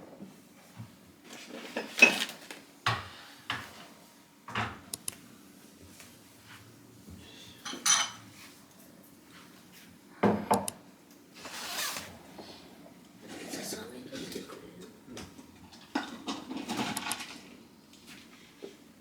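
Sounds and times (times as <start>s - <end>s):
dishes and cutlery clinking: 1.6s - 3.9s, 7.6s - 8.5s, 15.7s - 17.0s.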